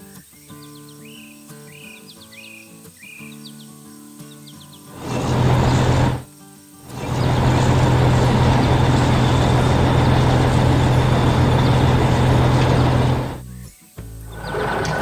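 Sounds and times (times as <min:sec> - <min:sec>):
heavy vehicle engine humming: 0:05.0 - 0:13.4, 0:14.3 - 0:15.0
steady engine sound: 0:05.0 - 0:13.4, 0:14.3 - 0:15.0.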